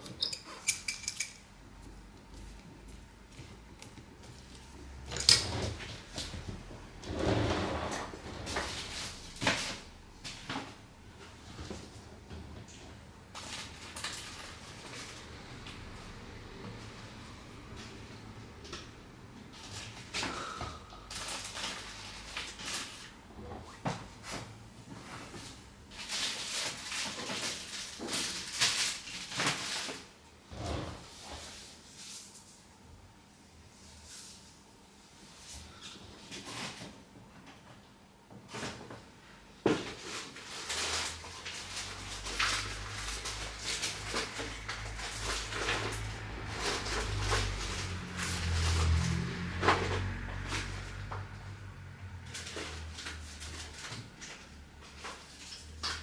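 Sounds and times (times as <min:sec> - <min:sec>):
tools clicking and tapping: 0:00.0 - 0:01.5.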